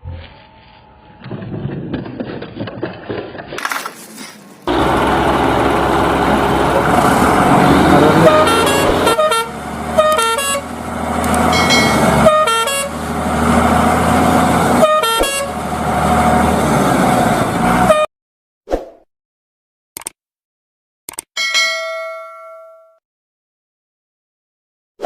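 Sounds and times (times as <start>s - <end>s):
cartoon engine running: 4.7s - 10.6s
horn tooting short notes: 7.8s - 10.7s, 11.4s - 13.0s, 14.8s - 15.6s, 17.8s - 18.1s.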